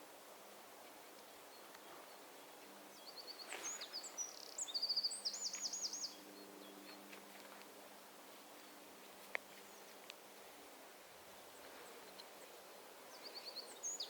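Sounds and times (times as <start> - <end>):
songbird singing trills: 2.9 - 7.1, 11.7 - 14.0.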